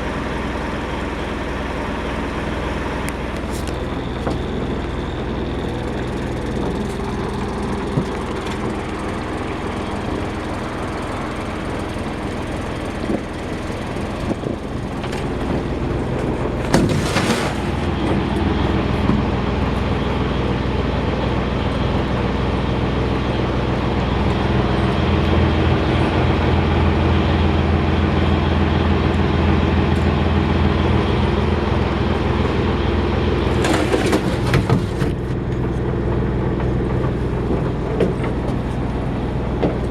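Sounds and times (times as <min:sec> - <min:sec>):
marine diesel engine running: 0:00.0 - 0:39.9.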